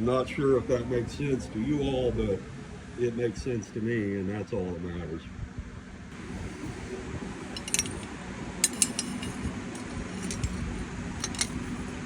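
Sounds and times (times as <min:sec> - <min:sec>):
steady low hum: 0:06.0 - 0:12.0
light metal clinks: 0:06.3 - 0:12.0.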